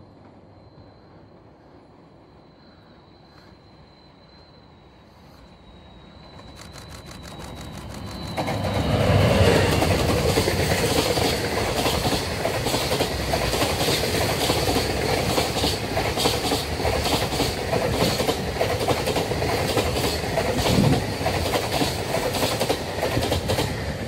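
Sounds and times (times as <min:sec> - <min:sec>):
diesel locomotive passing: 0:05.2 - 0:24.0
train wagons rumbling: 0:06.2 - 0:24.0
wheels clickety-clack over rail joints: 0:06.3 - 0:24.0.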